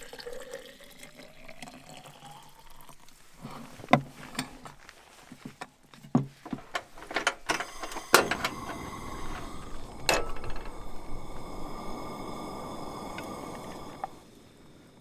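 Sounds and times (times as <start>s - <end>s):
cooking gear clicking and clattering: 3.4s - 4.8s, 5.4s - 14.2s
steady rushing hiss: 6.4s - 15.0s.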